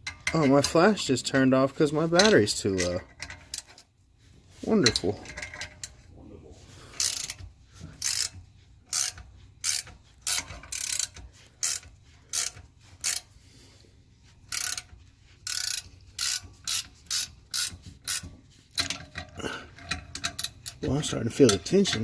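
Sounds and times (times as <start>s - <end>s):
ratchet wrench clicking: 3.1s - 3.8s, 7.0s - 7.4s, 8.0s - 13.3s, 14.5s - 22.0s.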